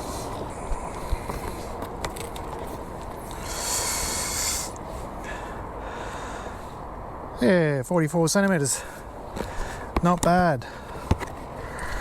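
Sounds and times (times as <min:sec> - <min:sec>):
rustling hiss: 0:00.0 - 0:07.0
steady background hiss: 0:00.0 - 0:12.0.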